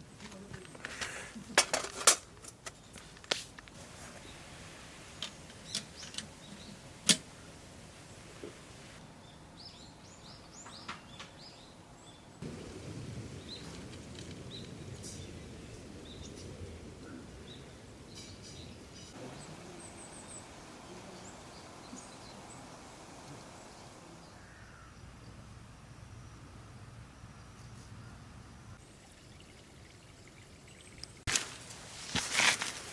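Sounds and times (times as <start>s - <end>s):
small birds chirping: 4.0s - 31.3s.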